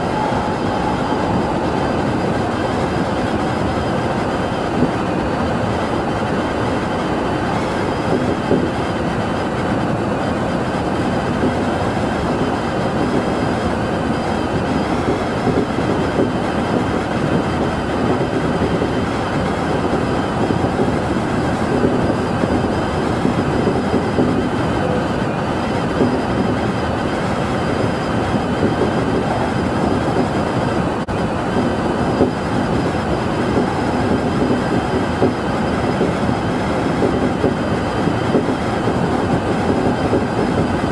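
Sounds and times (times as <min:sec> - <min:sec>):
faint high whines: 0:00.0 - 0:08.4
train wheels rumbling on rail: 0:00.0 - 0:40.9.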